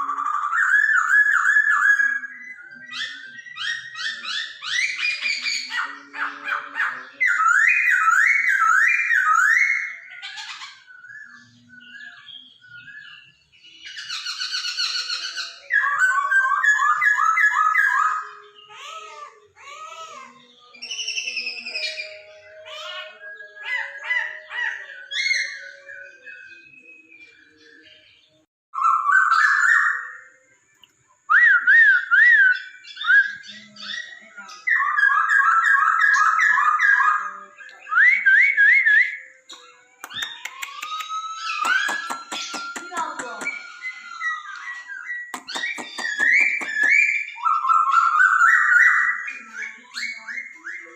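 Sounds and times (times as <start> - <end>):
bird whistling song: 0.0 - 50.9
bird chattering: 40.0 - 50.9.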